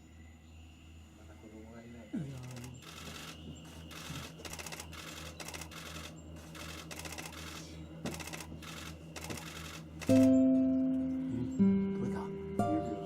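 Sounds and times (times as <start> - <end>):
camera shutters clicking in bursts: 2.4 - 10.4.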